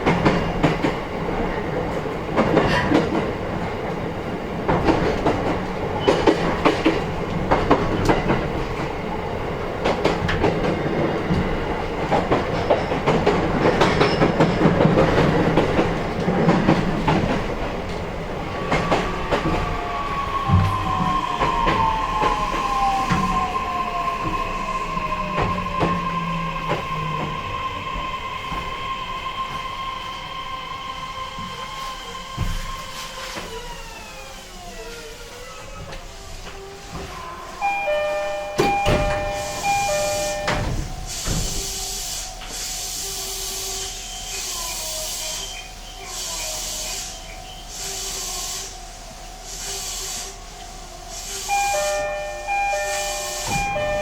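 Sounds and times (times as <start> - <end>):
train air hiss: 10.8 - 54.0
two-tone door chime: 37.6 - 41.4, 51.5 - 54.0
electric train motor whine: 51.4 - 54.0.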